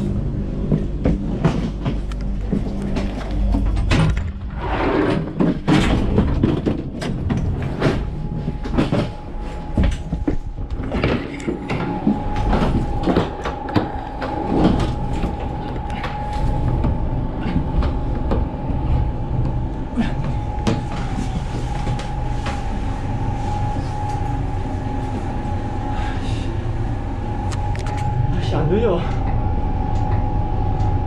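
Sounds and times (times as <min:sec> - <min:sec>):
train carriage rumble: 0:00.0 - 0:31.0
thin high whine: 0:07.6 - 0:31.0.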